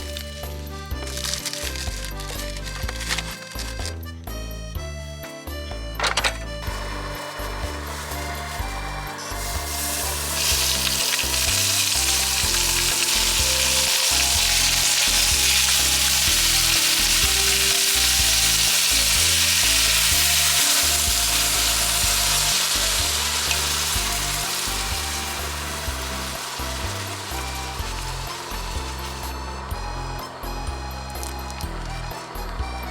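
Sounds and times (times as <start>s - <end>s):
background music: 0.0s - 32.9s
food sizzling in pan: 6.7s - 29.4s.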